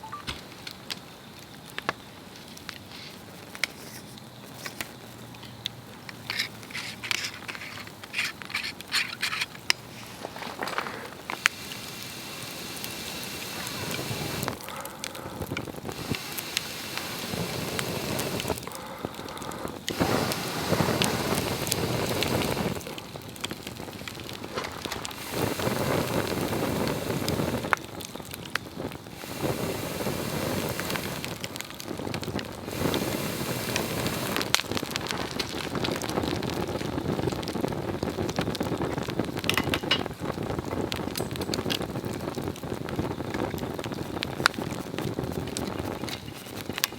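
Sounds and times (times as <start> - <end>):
rushing flame noise: 0.0 - 46.9
wood crackling and popping: 0.0 - 46.9.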